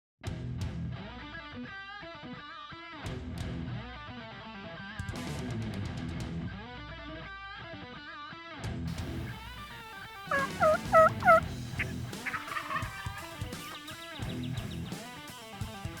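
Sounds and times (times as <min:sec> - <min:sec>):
turkey gobbling: 0:08.9 - 0:14.7.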